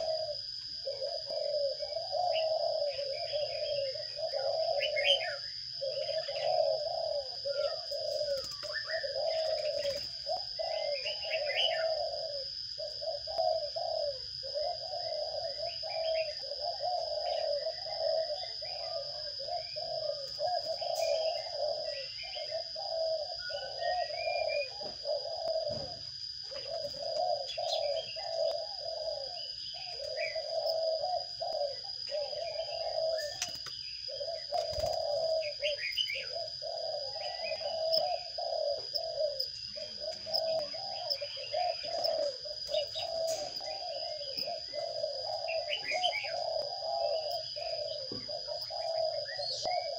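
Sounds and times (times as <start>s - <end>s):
low bird call: 0.0s - 49.9s
sparrows chirping: 0.0s - 49.9s.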